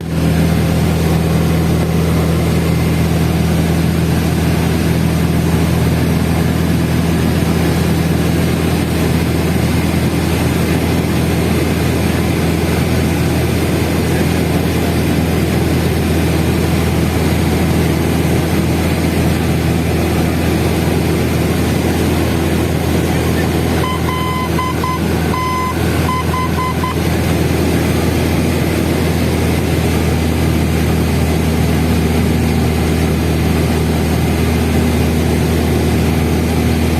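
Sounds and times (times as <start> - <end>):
aircraft engine and propeller droning: 0.0 - 36.9
short high beeps: 23.7 - 27.1.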